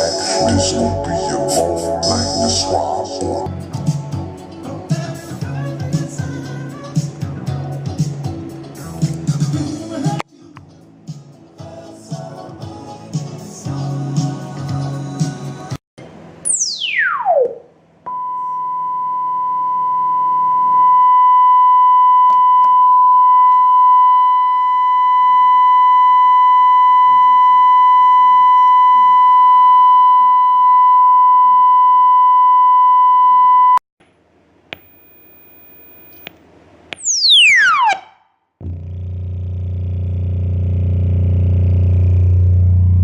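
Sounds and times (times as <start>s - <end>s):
downward pitch sweep tone: 0.0s - 3.5s, 16.4s - 18.2s, 37.0s - 39.2s
high-pitched sine test tone: 16.4s - 33.8s, 34.7s - 36.3s, 37.0s - 43.0s.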